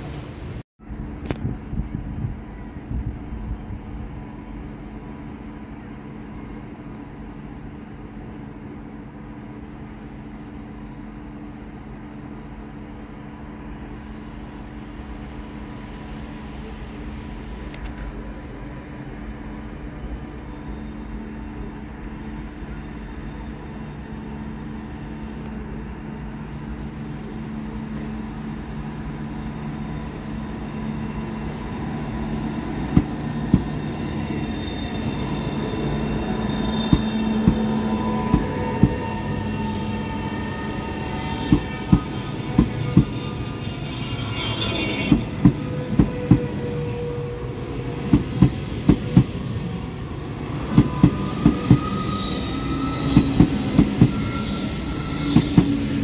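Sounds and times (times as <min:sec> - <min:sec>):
electric train hum: 0:00.0 - 0:56.0
faint high squeal: 0:19.6 - 0:25.8, 0:26.5 - 0:47.7, 0:50.5 - 0:56.0.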